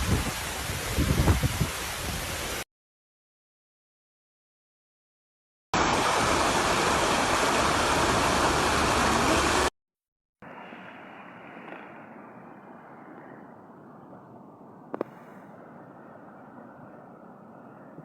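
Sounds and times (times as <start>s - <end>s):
water rushing: 5.8s - 9.7s.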